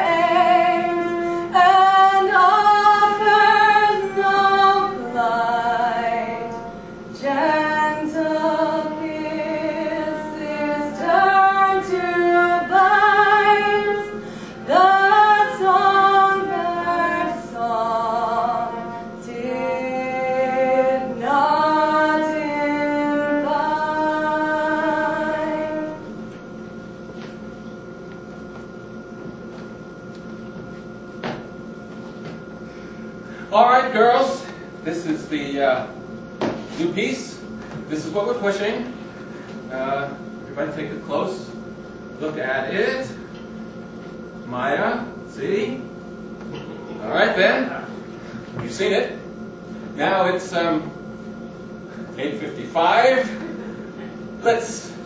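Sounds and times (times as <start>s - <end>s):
woman singing: 0.0s - 26.2s
faint steady hum: 0.0s - 55.0s.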